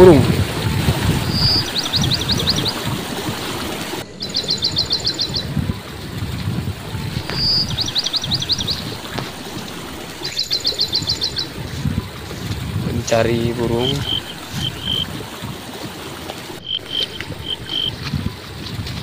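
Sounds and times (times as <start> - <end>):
stream water rushing: 0.0 - 19.0
bird singing trills: 1.2 - 2.9, 4.0 - 5.6, 7.1 - 11.8, 13.8 - 15.0, 16.6 - 18.0.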